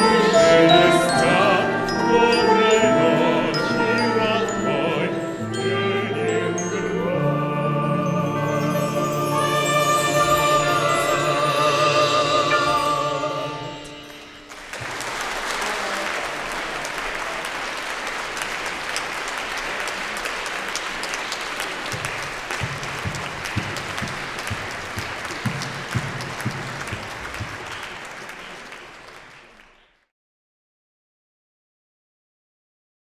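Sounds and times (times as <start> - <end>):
audience applauding: 14.0 - 30.0.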